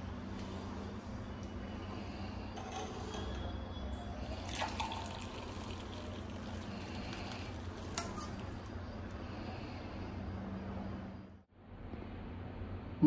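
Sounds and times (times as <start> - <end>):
low steady hum: 0.0 - 13.0
water trickling in sink: 4.2 - 9.4.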